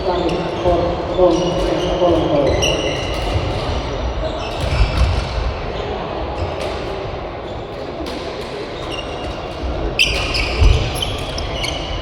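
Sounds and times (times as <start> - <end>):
sports hall rumble: 0.0 - 12.0
shoe squeaks on court floor: 8.7 - 12.0.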